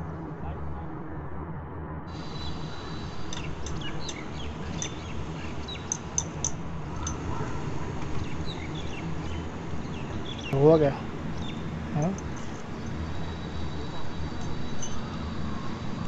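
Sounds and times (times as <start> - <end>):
low outdoor hum: 0.0 - 16.0
small birds chirping: 2.1 - 15.2.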